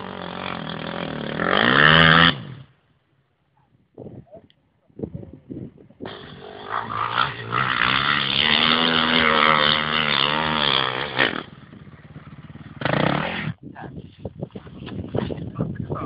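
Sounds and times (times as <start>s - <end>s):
dirt bike engine revving: 0.0s - 2.8s, 6.0s - 13.6s.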